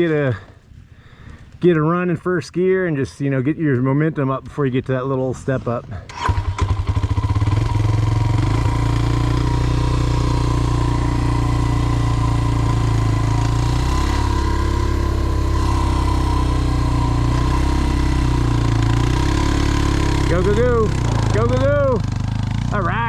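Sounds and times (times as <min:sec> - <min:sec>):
dirt bike engine idling: 0:06.3 - 0:23.0.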